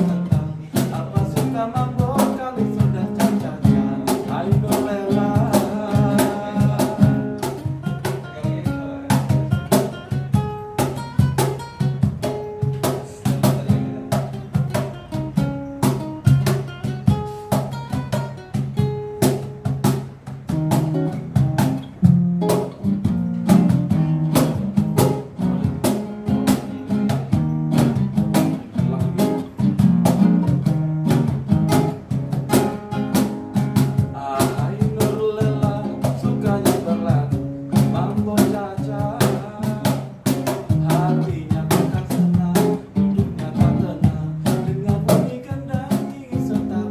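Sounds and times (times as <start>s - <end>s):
acoustic guitar chords: 0.0s - 46.9s
cajon beat: 0.0s - 46.9s.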